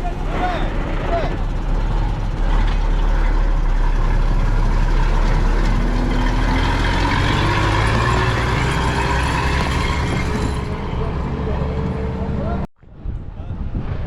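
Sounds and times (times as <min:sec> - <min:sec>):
vehicle engine running: 0:00.0 - 0:12.7.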